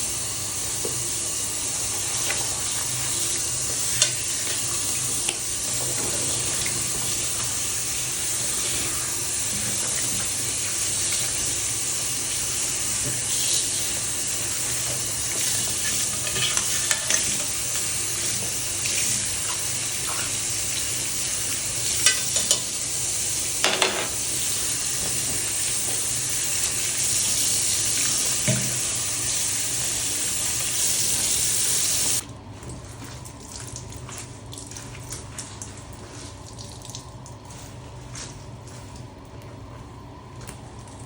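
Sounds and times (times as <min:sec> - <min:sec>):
water running from tap: 0:00.0 - 0:37.8
quiet wet handling sounds: 0:32.3 - 0:41.0.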